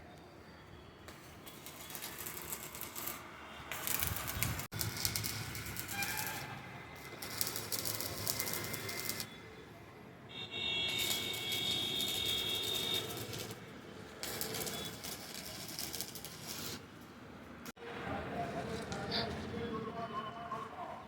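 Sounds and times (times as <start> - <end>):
electric arc welding crackle: 1.1 - 9.4, 10.9 - 16.9.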